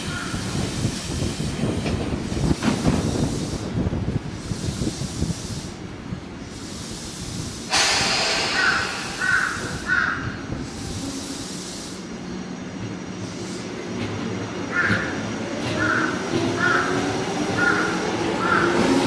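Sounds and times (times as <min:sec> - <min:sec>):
electric train rumbling on rails: 0:00.0 - 0:19.0
compressed air hiss: 0:00.2 - 0:12.3
crow cawing: 0:08.5 - 0:10.4, 0:14.7 - 0:15.2, 0:15.8 - 0:18.8.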